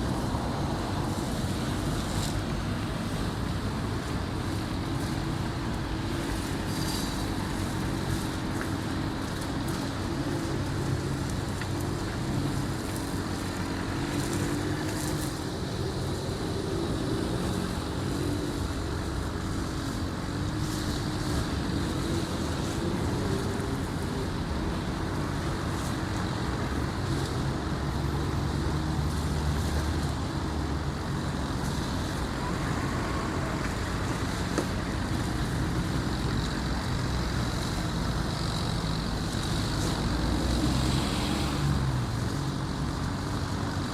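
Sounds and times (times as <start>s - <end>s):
heavy engines rumbling: 0.0s - 43.9s
outdoor noise: 0.0s - 43.9s.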